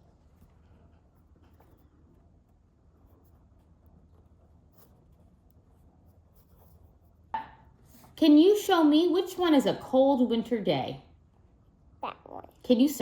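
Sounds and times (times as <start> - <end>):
pen scratching on paper: 0.4 - 7.3.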